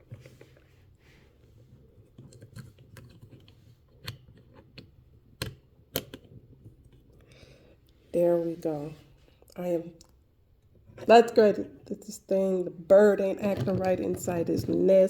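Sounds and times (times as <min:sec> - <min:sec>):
small clicks and taps: 0:02.1 - 0:07.0.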